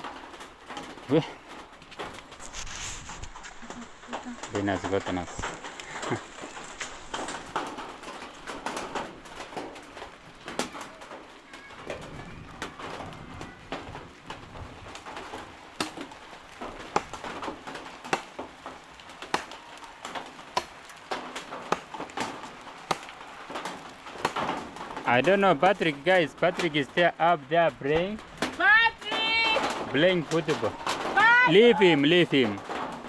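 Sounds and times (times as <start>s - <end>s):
sharp taps and knocks: 14.9s - 27.1s.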